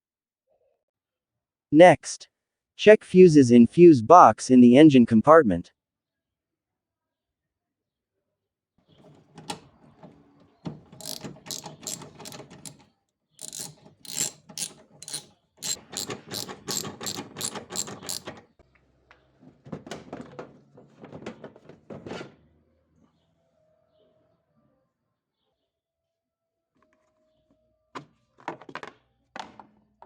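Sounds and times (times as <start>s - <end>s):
mechanical ratcheting clicks: 11.0s - 12.8s, 13.4s - 18.4s.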